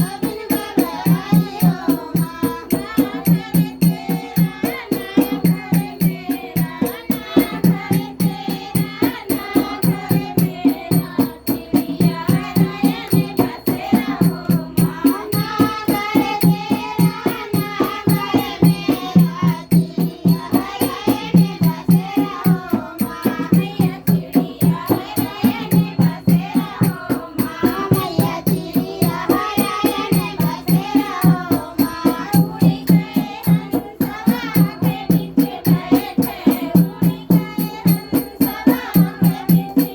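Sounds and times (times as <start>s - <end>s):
hand drum beat: 0.0s - 39.9s
jingling percussion: 0.0s - 39.9s
people singing folk song: 0.0s - 39.9s.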